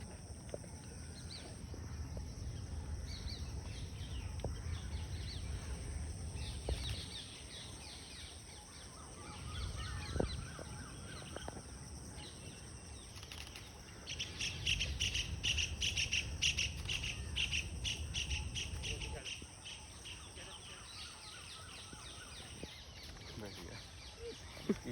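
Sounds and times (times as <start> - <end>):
low wind rumble: 0.0 - 13.2, 13.9 - 20.4
small birds chirping: 0.0 - 24.9.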